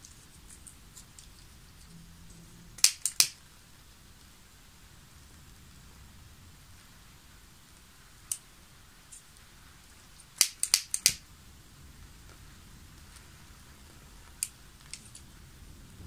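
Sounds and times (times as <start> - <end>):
faint steady hiss: 0.0 - 16.0
sharp clicks: 2.8 - 3.4, 10.2 - 11.2.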